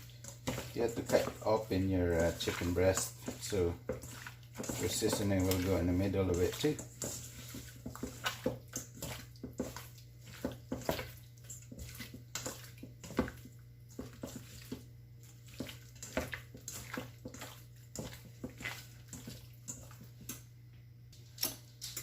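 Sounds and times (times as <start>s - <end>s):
hands squelching raw meat: 0.0s - 20.1s.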